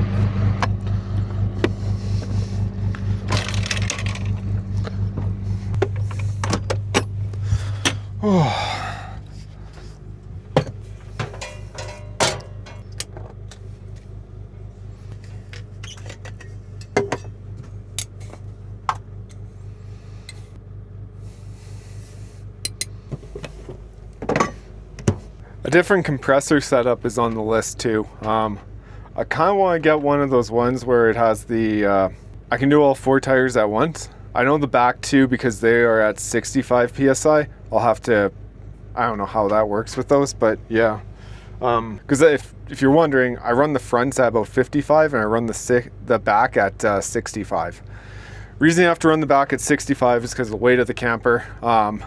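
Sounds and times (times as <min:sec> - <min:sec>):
air compressor pulsing hum: 0:00.0 - 0:30.2.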